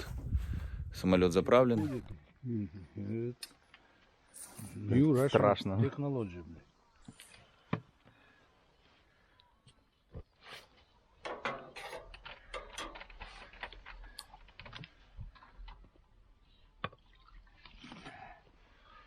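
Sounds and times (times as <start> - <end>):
rustling: 10.2 - 16.3
objects clicking and knocking: 11.2 - 15.9.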